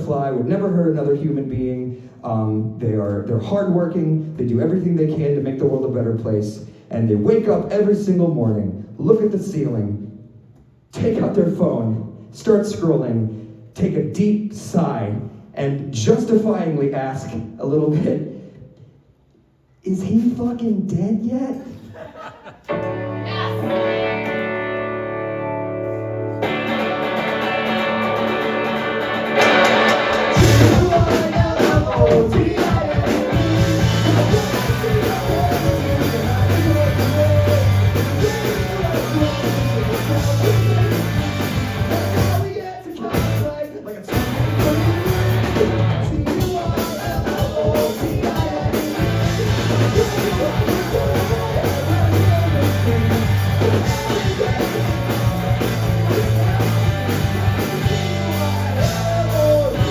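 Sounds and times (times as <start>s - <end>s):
held guitar chord ringing: 22.7s - 30.7s
rock band playing: 22.7s - 59.9s.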